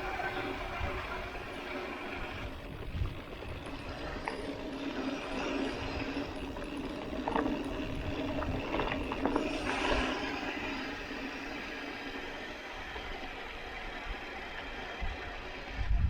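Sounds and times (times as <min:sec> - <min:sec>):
bike rattles and knocks: 0:00.0 - 0:11.5
bike tyre riding noise: 0:00.0 - 0:16.0.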